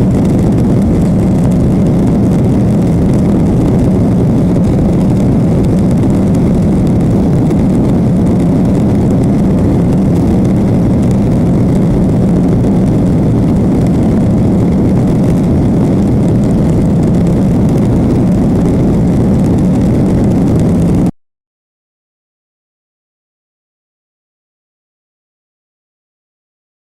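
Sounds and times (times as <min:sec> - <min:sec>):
jet engine roar in cabin: 0:00.0 - 0:21.1.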